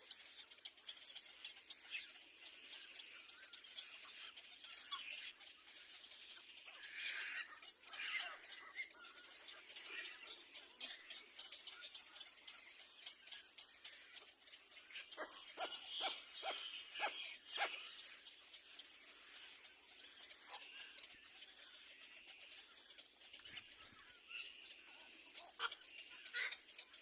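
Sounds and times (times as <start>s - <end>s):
cormorant nestlings calling: 14.9s - 18.1s.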